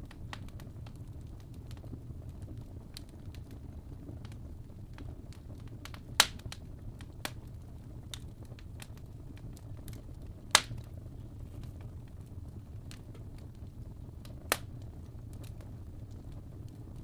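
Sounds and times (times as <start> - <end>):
fire crackling: 0.0 - 17.0
fire low rumble: 0.0 - 17.0
loud sharp pops: 10.6 - 10.8.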